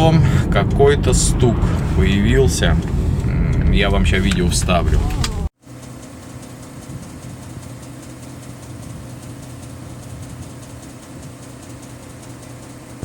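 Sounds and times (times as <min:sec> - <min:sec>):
diesel engine idling: 0:00.0 - 0:05.5.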